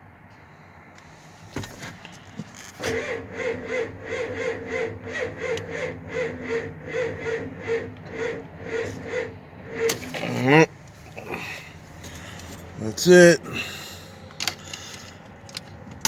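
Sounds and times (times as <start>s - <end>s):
starter cranking diesel engine: 1.2s - 16.0s
starter clunk engaging: 1.6s - 10.3s, 14.3s - 16.0s.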